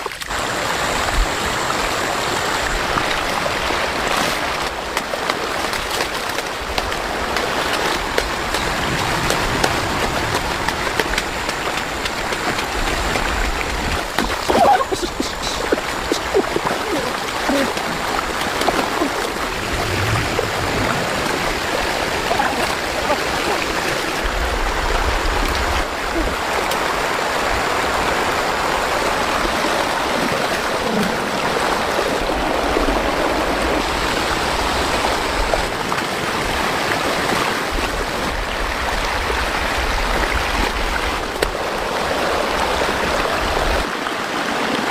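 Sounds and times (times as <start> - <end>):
floodwater rushing: 0.0 - 44.9.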